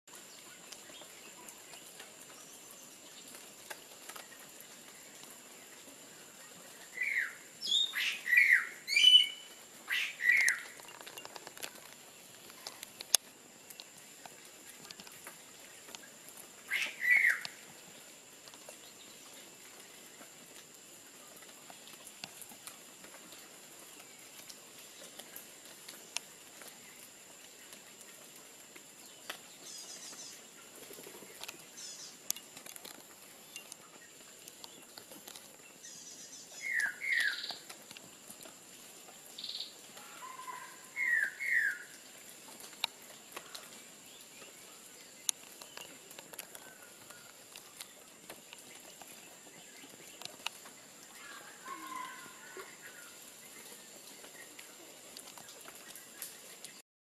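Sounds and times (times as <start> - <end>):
downward-sliding bird calls: 7.0 - 10.9, 16.7 - 17.6, 40.2 - 41.9
faint ticks: 9.5 - 40.2, 41.9 - 56.8.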